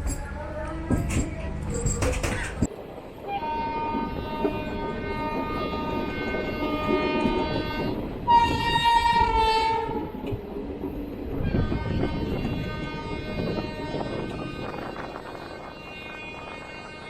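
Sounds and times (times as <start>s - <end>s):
low train rumble: 0.0s - 17.0s
locomotive horn blasts: 3.3s - 10.0s, 11.4s - 17.0s.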